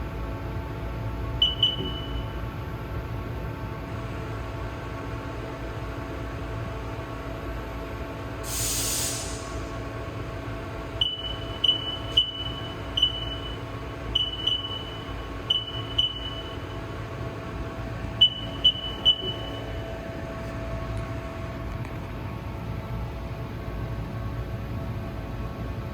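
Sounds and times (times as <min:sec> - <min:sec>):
keypad beeping: 0:01.4 - 0:02.2, 0:11.0 - 0:13.6, 0:14.2 - 0:16.6, 0:18.2 - 0:19.7
short hiss: 0:08.5 - 0:09.6.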